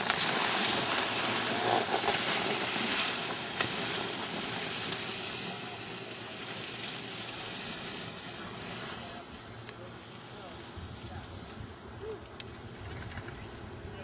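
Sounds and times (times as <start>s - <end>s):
skis sliding over snow: 0.0s - 14.0s
wind on microphone: 10.7s - 14.0s.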